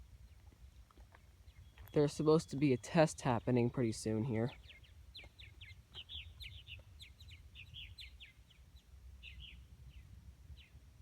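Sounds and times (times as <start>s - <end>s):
faint bird chirps: 4.5s - 10.8s.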